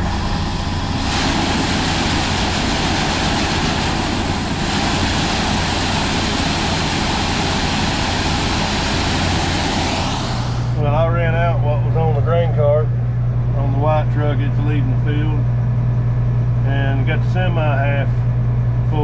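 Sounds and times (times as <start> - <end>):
loud rushing noise: 0.0 - 10.8
diesel tractor engine running: 0.0 - 19.0.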